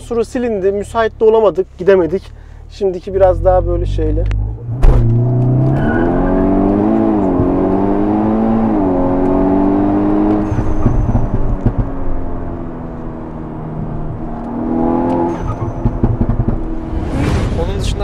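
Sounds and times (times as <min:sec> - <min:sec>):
car engine pulling hard: 0:03.2 - 0:18.0
gear change: 0:03.2 - 0:18.0
exhaust crackles and pops: 0:10.2 - 0:13.4, 0:14.0 - 0:18.0.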